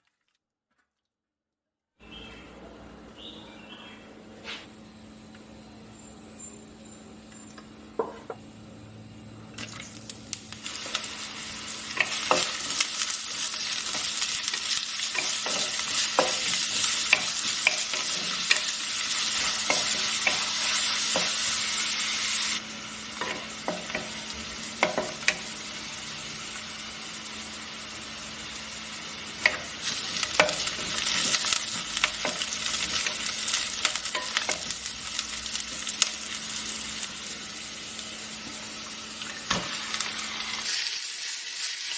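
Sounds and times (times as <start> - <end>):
chicken sizzling in oil: 9.6 - 41.9.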